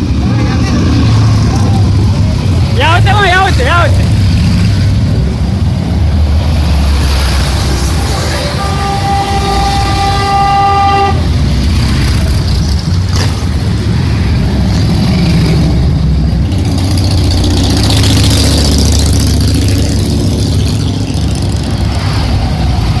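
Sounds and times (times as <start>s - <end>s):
motorcycle engine running: 8.8s - 23.0s.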